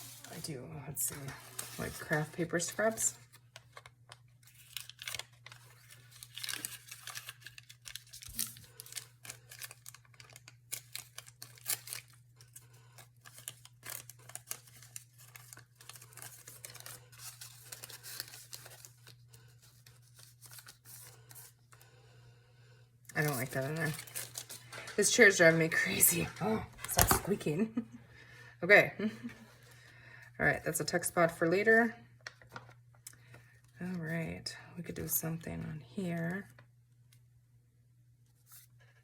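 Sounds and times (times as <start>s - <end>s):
paper rustling and tearing: 0.0s - 0.5s, 1.1s - 21.6s, 23.2s - 27.2s.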